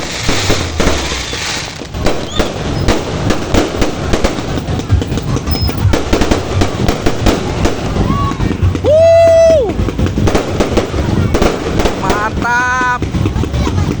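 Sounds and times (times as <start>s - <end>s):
firework whistle: 0.0s - 4.5s, 7.4s - 9.8s
firecracker bangs and pops: 0.0s - 14.0s.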